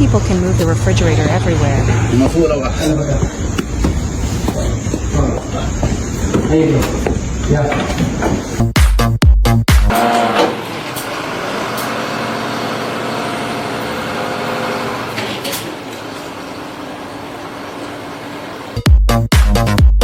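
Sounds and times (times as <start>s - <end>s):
vehicle engine humming: 0.0s - 8.8s.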